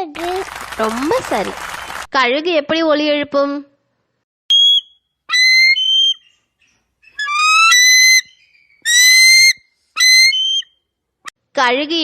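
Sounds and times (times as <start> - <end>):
eagle screaming: 5.3 - 6.4, 7.0 - 10.7.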